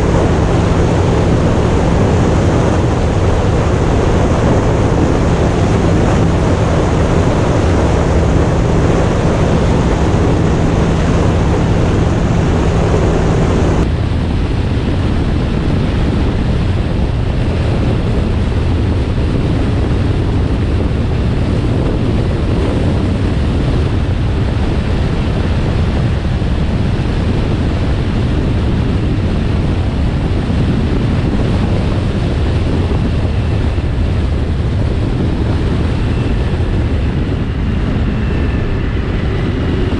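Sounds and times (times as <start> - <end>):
motorcycle running: 0.0 - 39.9
wind rushing over microphone: 0.0 - 39.9.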